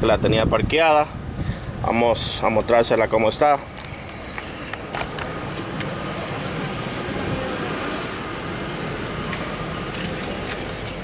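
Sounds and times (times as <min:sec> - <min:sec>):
engine idling: 0:03.8 - 0:11.0.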